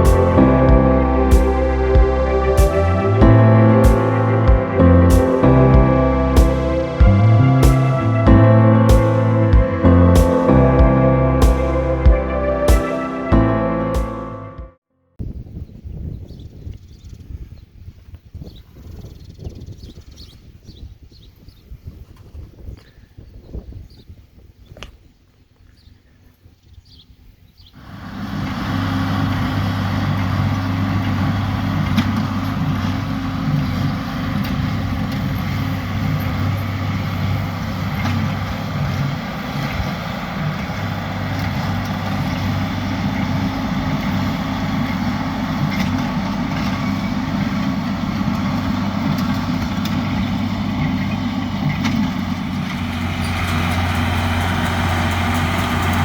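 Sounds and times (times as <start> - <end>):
tractor engine running: 0.0 - 14.6, 27.8 - 56.0.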